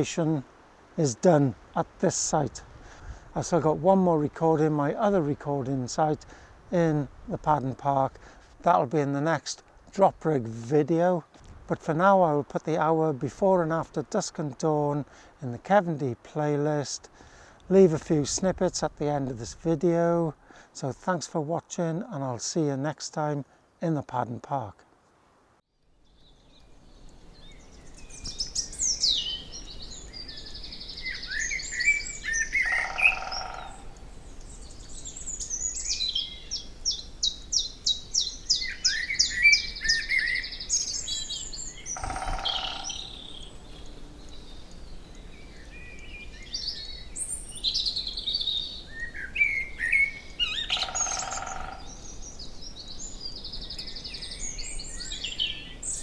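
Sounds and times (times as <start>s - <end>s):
songbirds singing: 25.9s - 56.0s
woodpecker drumming: 30.7s - 52.6s.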